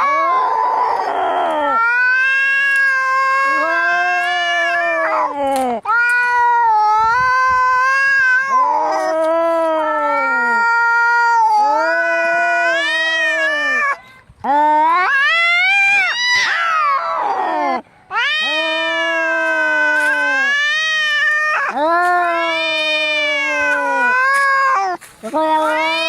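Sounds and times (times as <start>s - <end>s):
cats yowling: 0.0s - 26.0s.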